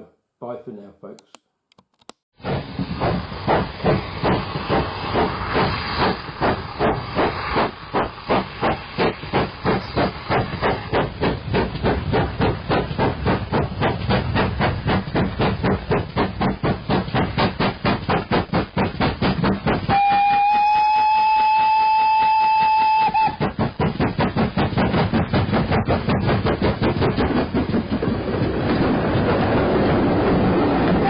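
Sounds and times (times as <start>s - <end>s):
steam locomotive chuffing: 2.4s - 31.0s
locomotive whistle blast: 19.9s - 23.4s.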